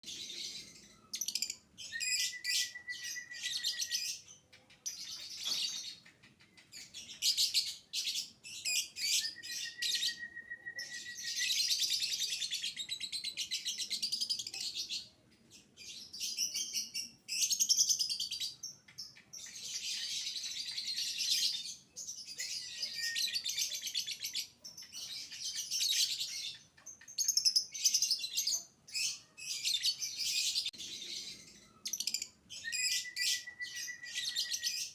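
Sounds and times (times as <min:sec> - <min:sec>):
thin steady whistle: 0:09.3 - 0:11.4.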